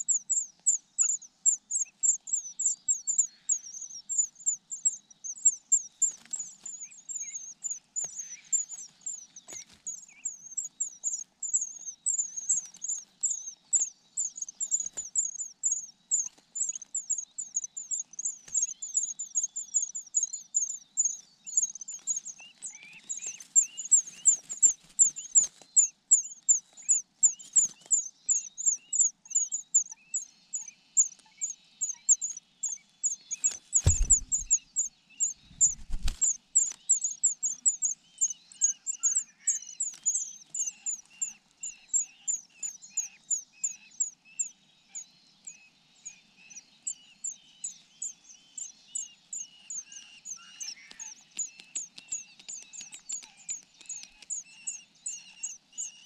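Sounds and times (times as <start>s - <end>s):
bird high downward chirps: 31.4s - 44.0s
lower chirps: 33.8s - 34.6s
rustling: 33.8s - 34.6s.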